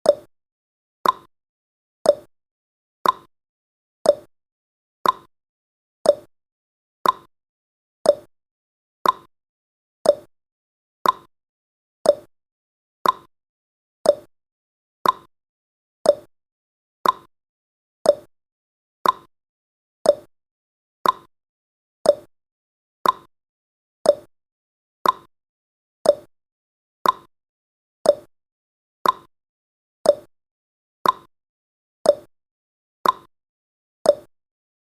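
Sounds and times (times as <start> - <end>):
timer ticking: 0.0 - 0.3, 1.0 - 1.3, 2.0 - 2.3, 3.0 - 3.3, 4.0 - 4.3, 5.0 - 5.3, 6.0 - 6.3, 7.0 - 7.3, 8.0 - 8.3, 9.0 - 9.3, 10.0 - 10.3, 11.0 - 11.3, 12.0 - 12.3, 13.0 - 13.3, 14.0 - 14.3, 15.0 - 15.3, 16.0 - 16.3, 17.0 - 17.3, 18.0 - 18.3, 19.0 - 19.3, 20.0 - 20.3, 21.0 - 21.3, 22.0 - 22.3, 23.0 - 23.3, 24.0 - 24.3, 25.0 - 25.3, 26.0 - 26.3, 27.0 - 27.3, 28.0 - 28.3, 29.0 - 29.3, 30.0 - 30.3, 31.0 - 31.3, 32.0 - 32.3, 33.0 - 33.3, 34.1 - 34.3.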